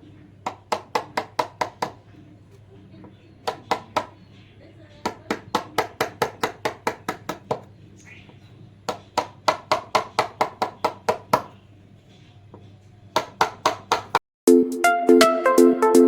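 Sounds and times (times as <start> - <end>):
hammering on wood: 0.4 - 2.2, 3.4 - 4.3, 5.0 - 7.7, 8.3 - 11.6, 12.5 - 14.2.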